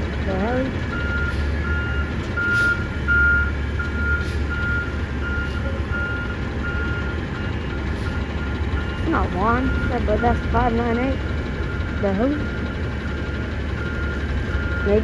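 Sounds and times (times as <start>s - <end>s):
truck backup alarm beeping: 0.0s - 15.0s
truck engine running: 0.0s - 15.0s.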